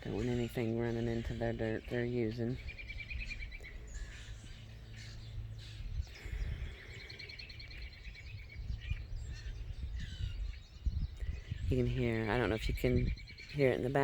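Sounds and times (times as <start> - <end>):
distant mowers rumbling: 0.0 - 10.6
bird trill: 0.0 - 14.0
songbirds singing: 0.0 - 14.0.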